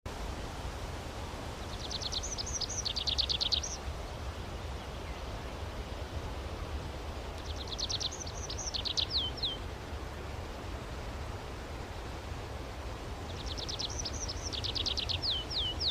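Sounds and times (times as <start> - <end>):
songbird singing high notes: 1.7 - 3.8, 7.4 - 9.6, 13.4 - 15.9.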